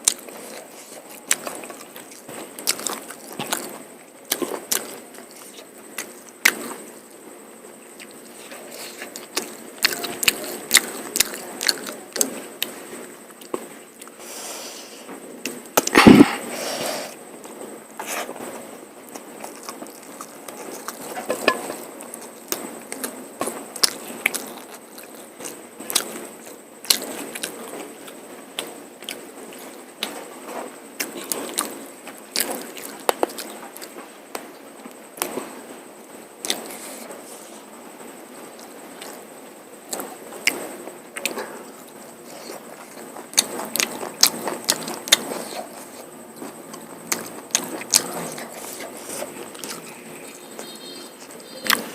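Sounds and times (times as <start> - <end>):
wet chewing: 0.0 - 6.8, 8.0 - 12.7, 19.1 - 30.2, 39.9 - 51.9
sharp mouth clicks: 15.8 - 16.4.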